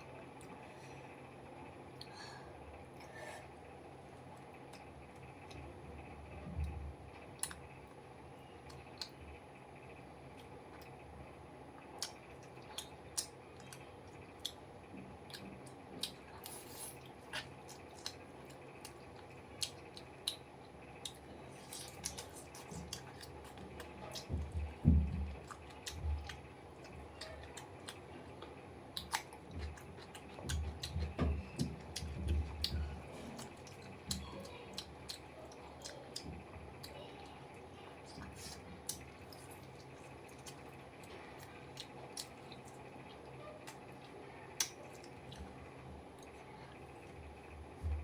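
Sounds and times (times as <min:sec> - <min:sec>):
person chewing: 0:07.4 - 0:07.6, 0:11.8 - 0:14.6, 0:15.2 - 0:37.0, 0:38.0 - 0:46.4
wet clicks and smacks: 0:15.2 - 0:37.0, 0:38.2 - 0:45.6.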